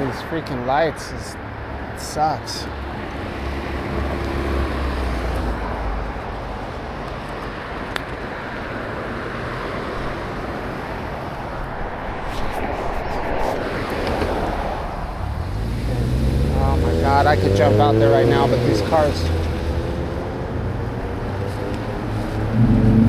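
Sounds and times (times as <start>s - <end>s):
engine rumble: 3.9s - 23.0s.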